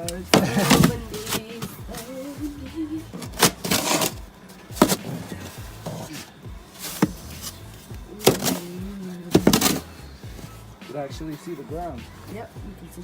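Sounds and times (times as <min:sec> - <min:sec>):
snow shovel scraping a deck: 0:00.0 - 0:11.5.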